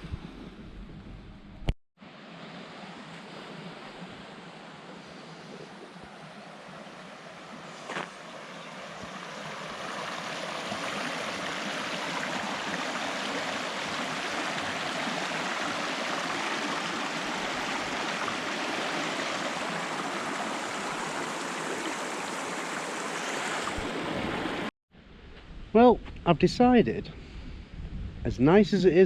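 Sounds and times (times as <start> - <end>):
stream rushing over rocks: 7.4 - 24.7.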